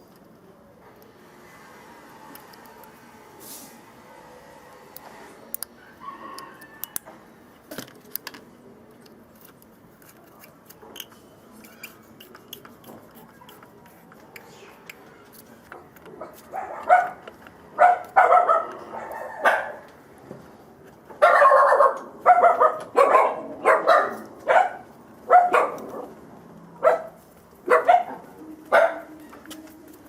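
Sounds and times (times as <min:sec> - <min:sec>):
dog barking: 0:16.5 - 0:17.2, 0:17.8 - 0:19.8, 0:21.2 - 0:26.1, 0:26.8 - 0:29.1.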